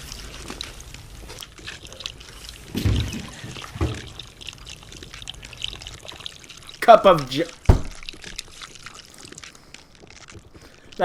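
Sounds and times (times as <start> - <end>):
liquid pouring in a trickle: 0.0 - 11.0
dull thumps: 7.6 - 8.4.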